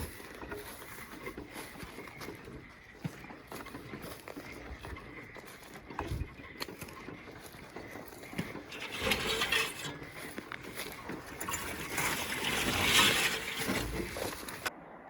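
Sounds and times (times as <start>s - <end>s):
brush rustling: 0.0s - 14.7s
footsteps hiking: 0.0s - 14.7s.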